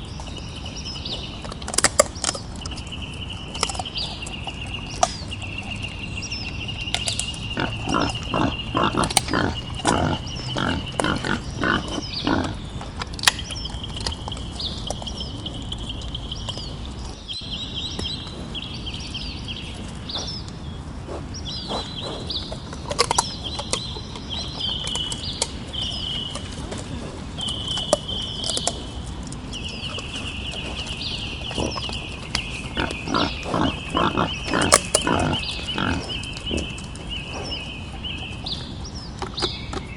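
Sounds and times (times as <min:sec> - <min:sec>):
wild boar grunting: 0:07.6 - 0:12.6, 0:32.8 - 0:36.2.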